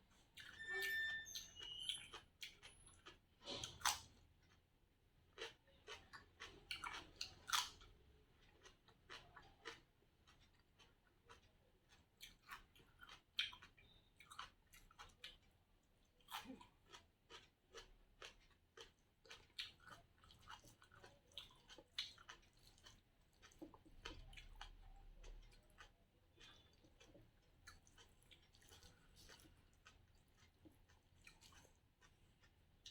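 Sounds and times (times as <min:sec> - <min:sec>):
person chewing food: 0:01.6 - 0:32.9.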